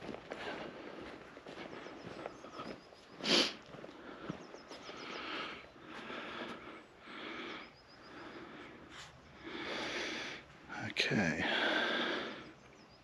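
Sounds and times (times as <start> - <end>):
person sniffing sharply: 3.2 - 3.6.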